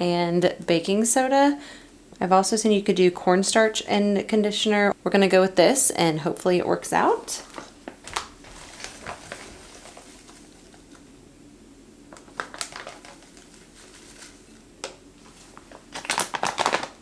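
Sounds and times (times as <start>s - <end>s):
packaging crinkling: 7.3s - 11.1s, 12.1s - 17.0s.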